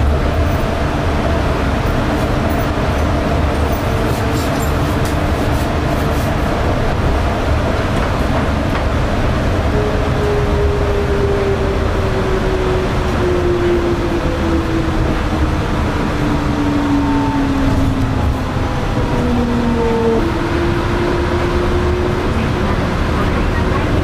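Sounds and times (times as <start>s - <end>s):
train low rumble: 0.0s - 24.0s.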